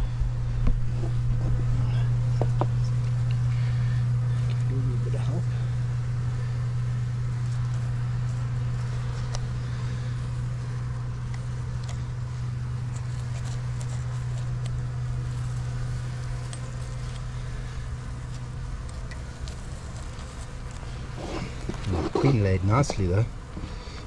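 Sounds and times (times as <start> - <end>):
honey bees humming: 0.0 - 24.0
faint clicks of hive frame: 7.6 - 21.9.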